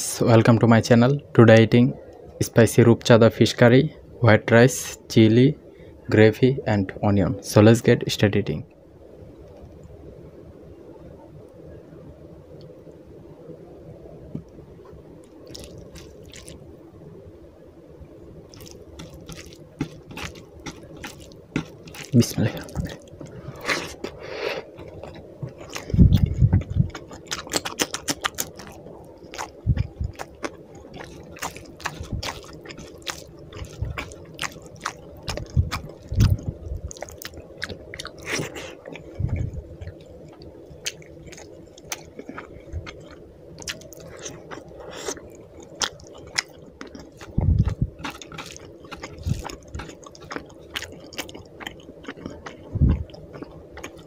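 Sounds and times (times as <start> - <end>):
chewing and wet mouth smacks: 15.3 - 16.6, 18.5 - 54.0
fingers squishing rice: 15.4 - 16.6, 18.5 - 39.1, 39.8 - 54.0
dull low thumps: 25.4 - 27.0, 35.2 - 37.0, 39.1 - 39.9, 47.2 - 48.0, 52.7 - 53.1.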